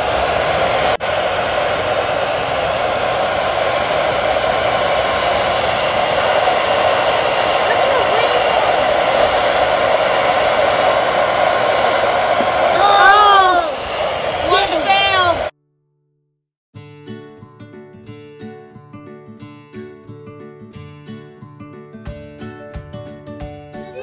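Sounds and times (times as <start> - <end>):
hair dryer blowing: 0.0 - 15.5.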